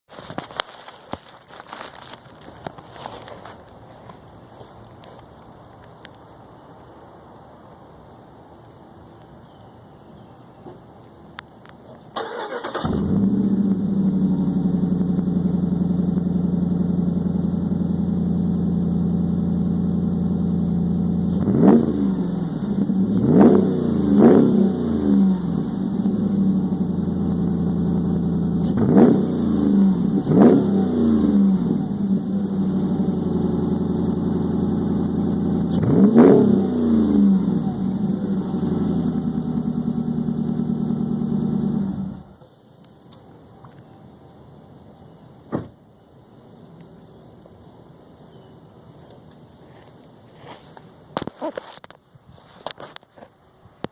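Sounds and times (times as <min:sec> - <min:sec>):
engine revving: 0:12.2 - 0:42.3.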